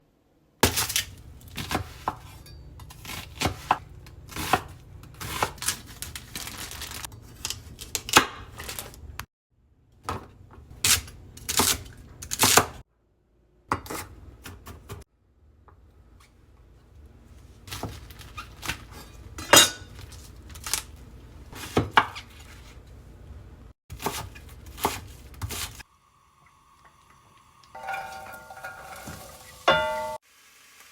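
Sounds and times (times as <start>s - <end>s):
knife chopping on cutting board: 1.6s - 5.6s, 23.9s - 25.8s
pots and utensils clinking: 19.0s - 20.2s, 27.7s - 30.2s.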